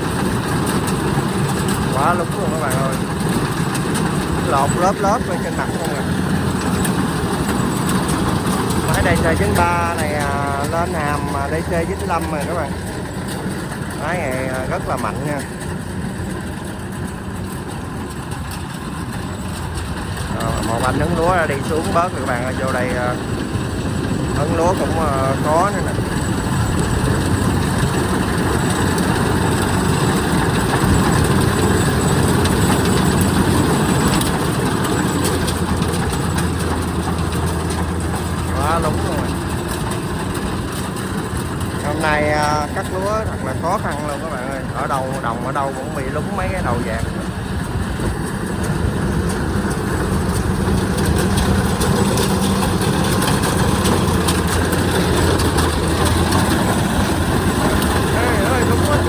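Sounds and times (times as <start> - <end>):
diesel engine running: 0.0 - 59.0
machinery clicks and rattles: 0.0 - 59.0.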